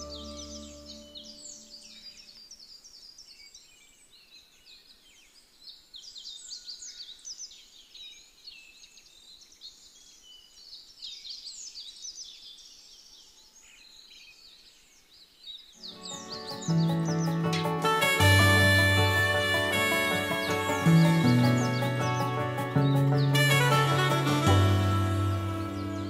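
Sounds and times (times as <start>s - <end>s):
downward-sweeping bird calls: 0.0s - 2.4s, 15.8s - 26.0s
birds chirping: 0.0s - 26.0s.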